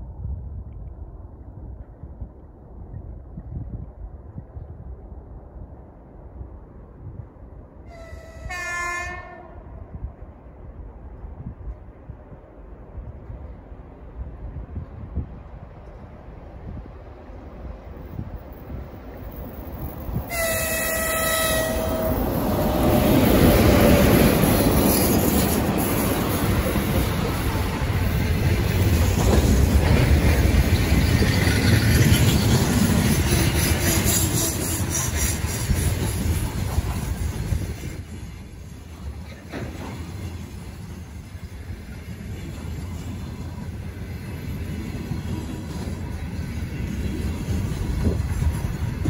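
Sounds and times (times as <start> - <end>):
train wheels rumbling on rails: 6.6 - 49.0
train horn: 7.9 - 9.9, 20.3 - 22.3.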